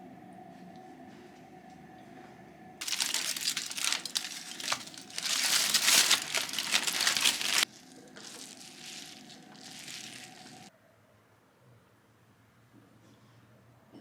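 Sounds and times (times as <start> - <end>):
faint rustling: 2.8 - 10.7
wrapping crinkling: 2.8 - 10.7.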